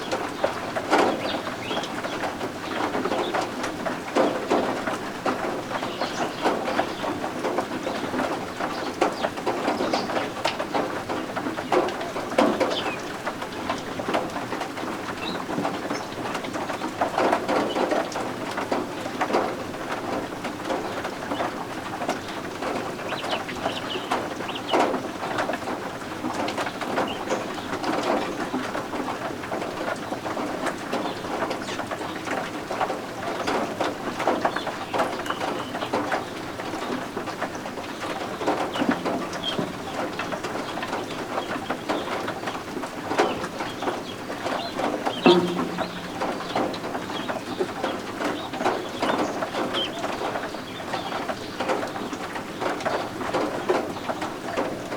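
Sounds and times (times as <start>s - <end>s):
guinea fowl chicks peeping: 0.0s - 3.5s, 20.1s - 25.5s, 30.2s - 54.7s
rain pattering: 0.0s - 54.9s.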